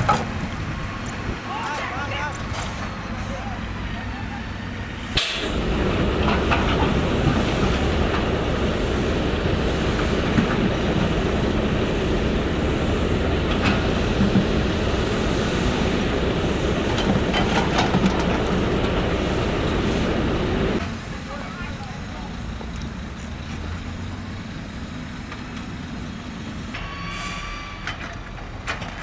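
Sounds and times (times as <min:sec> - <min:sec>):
heavy machinery deep rumble: 0:04.7 - 0:20.8.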